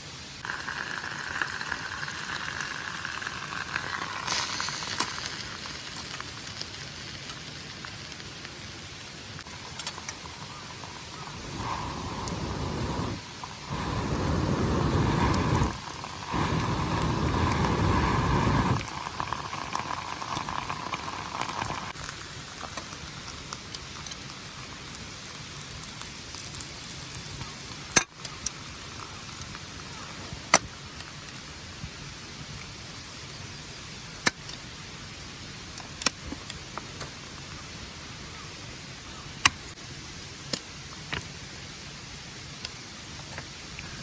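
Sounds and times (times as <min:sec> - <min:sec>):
campfire crackling and popping: 0:00.4 - 0:34.6.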